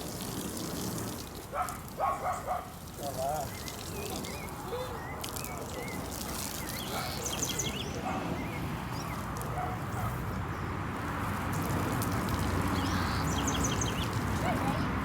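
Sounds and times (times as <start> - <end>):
hose water spraying on a van: 0.0 - 15.0
birds chirping: 3.2 - 10.7, 12.6 - 14.9.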